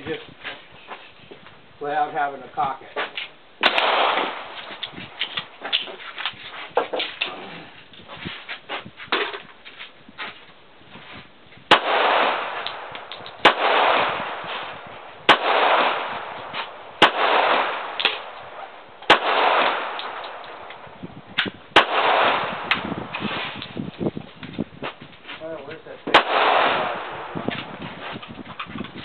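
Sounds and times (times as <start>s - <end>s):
pistol shots echoing: 3.6s - 4.9s, 11.7s - 20.8s, 21.7s - 23.1s, 26.1s - 27.5s.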